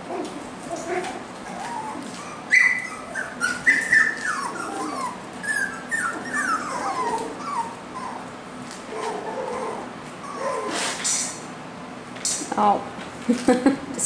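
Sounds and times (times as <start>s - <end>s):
puppies yipping and whimpering: 0.6s - 11.4s.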